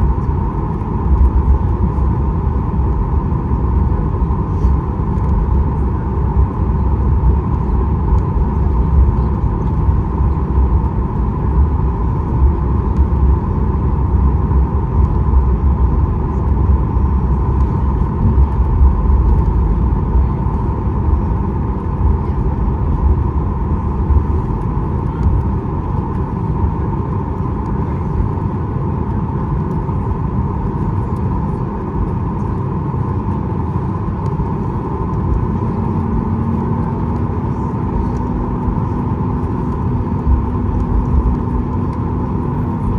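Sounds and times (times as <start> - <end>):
engine and air system hum: 0.0 - 29.0
aircraft cabin rumble: 0.0 - 42.9.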